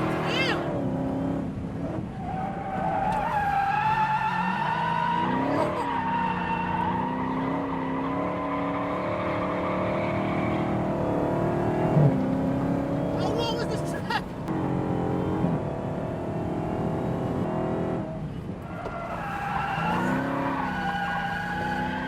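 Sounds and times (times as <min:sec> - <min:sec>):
car engine: 0:00.0 - 0:22.0
car tyres squealing: 0:02.0 - 0:11.0, 0:18.3 - 0:22.0.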